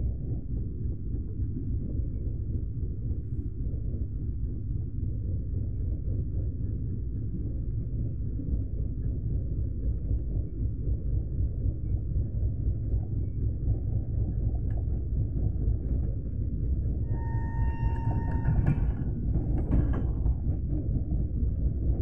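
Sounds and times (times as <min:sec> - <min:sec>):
train rumbling on rails: 0:13.5 - 0:22.0.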